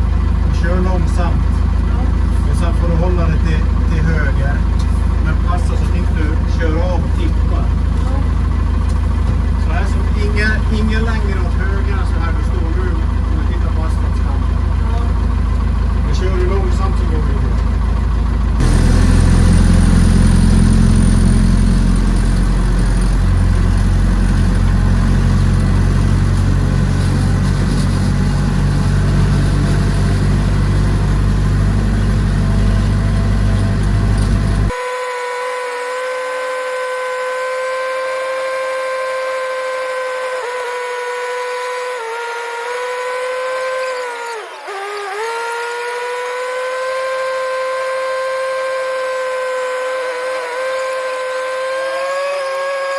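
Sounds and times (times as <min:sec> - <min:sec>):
heavy diesel engine running: 0:00.0 - 0:52.9
steady pitched whine: 0:18.4 - 0:34.7.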